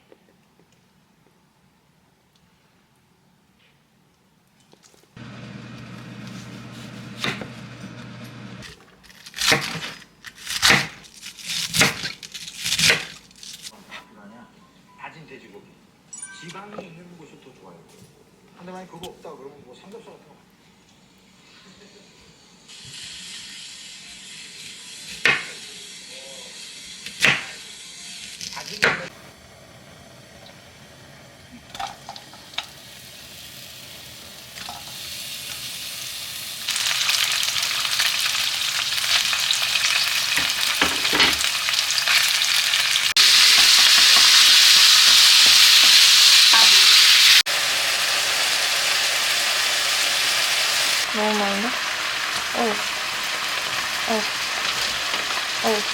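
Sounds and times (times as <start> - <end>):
food sizzling in a frying pan: 22.3 - 55.9.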